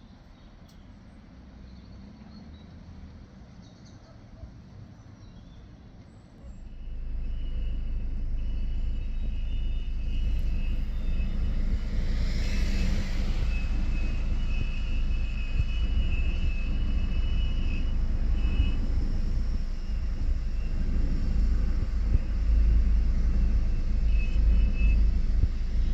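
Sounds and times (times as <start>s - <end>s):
jet engines rumbling and whining: 6.3s - 25.9s.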